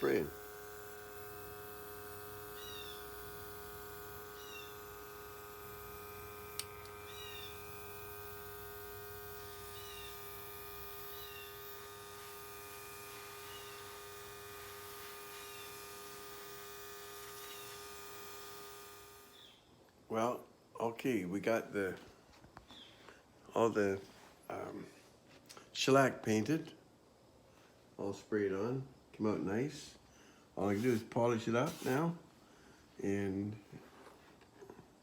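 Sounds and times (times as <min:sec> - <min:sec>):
paint sprayer humming: 0:00.0 - 0:19.4, 0:30.7 - 0:32.1.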